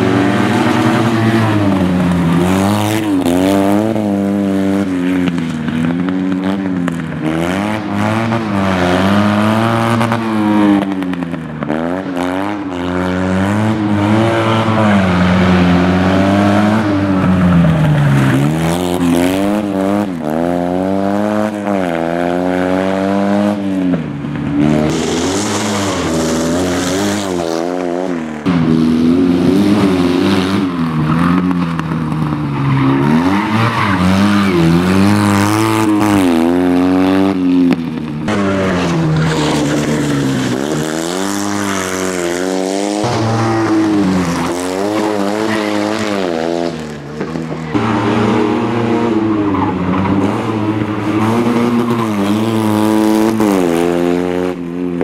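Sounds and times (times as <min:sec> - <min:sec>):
car engine revving hard: 0:24.6 - 0:32.1, 0:32.9 - 0:37.7, 0:38.3 - 0:55.0.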